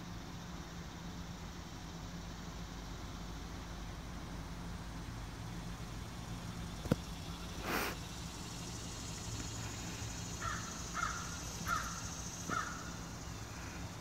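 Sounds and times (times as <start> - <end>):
low background hum: 0.0 - 14.0
bird harsh calls: 9.6 - 13.9.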